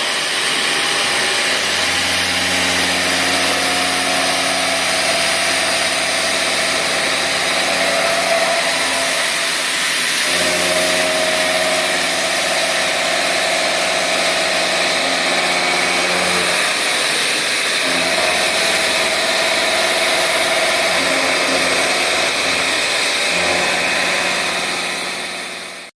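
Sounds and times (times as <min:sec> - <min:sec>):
milling machine spindle hum: 0:00.0 - 0:25.9.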